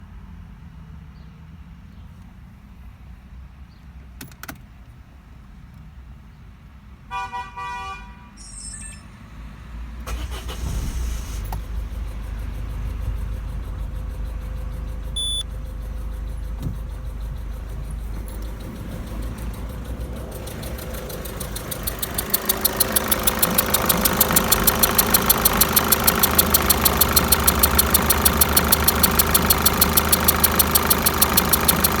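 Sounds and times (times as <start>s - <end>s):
diesel engine idling: 10.1s - 32.0s
rapid engine ticking: 10.1s - 32.0s.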